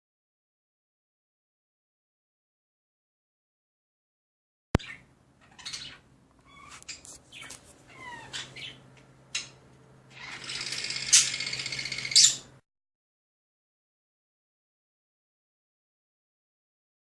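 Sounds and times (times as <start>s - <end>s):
partridge chirps and rattling calls: 4.8s - 12.5s.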